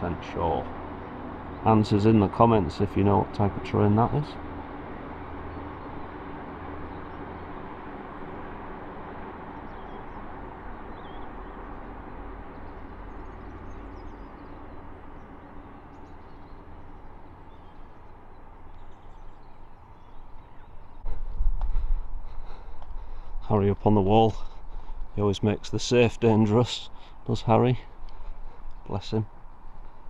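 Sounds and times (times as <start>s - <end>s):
distant train rumble: 0.0s - 30.0s
faint bird chirps: 10.9s - 21.4s.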